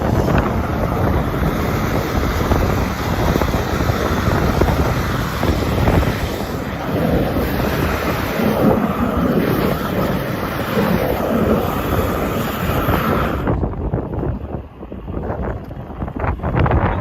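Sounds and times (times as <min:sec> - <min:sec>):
steady hiss: 0:00.0 - 0:13.6
wind buffeting microphone: 0:00.0 - 0:17.0.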